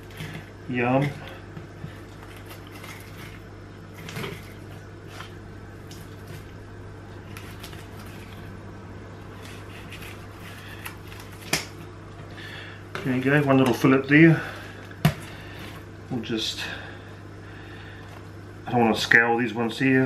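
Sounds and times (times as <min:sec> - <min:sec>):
steady low hum: 0:00.0 - 0:20.0
knife scraping along fish bones: 0:01.9 - 0:05.4, 0:09.3 - 0:11.6.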